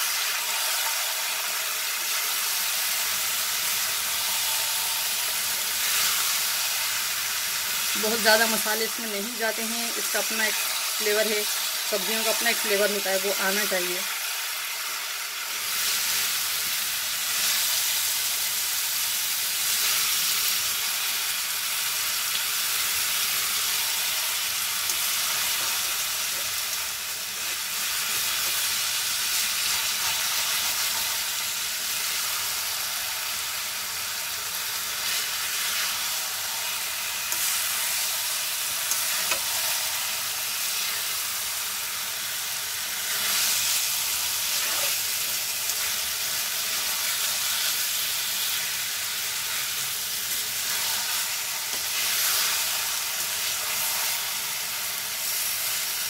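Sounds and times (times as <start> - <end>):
vegetables sizzling in oil: 0.0 - 56.0
spatula stirring: 44.4 - 46.0.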